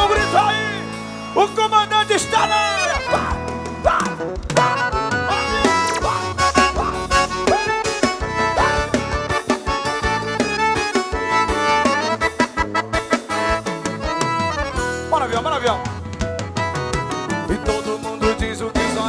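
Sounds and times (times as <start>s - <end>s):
accordion-like lead melody: 0.0s - 19.0s
bass: 0.0s - 19.0s
regular drum beat: 0.0s - 19.0s.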